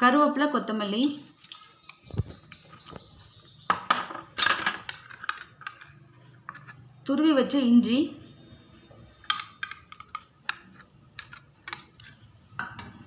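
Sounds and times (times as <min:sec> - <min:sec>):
bird chirping: 0:00.7 - 0:04.1.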